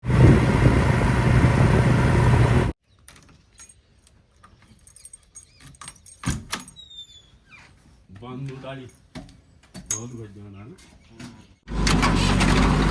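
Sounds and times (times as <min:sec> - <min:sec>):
loud engine-like rumble: 0:00.0 - 0:02.8, 0:11.7 - 0:12.9.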